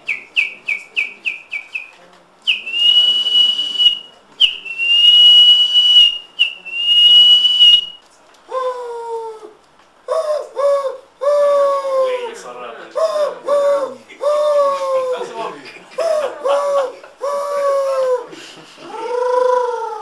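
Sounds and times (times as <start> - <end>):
person whistling bird call: 0.1 - 8.0.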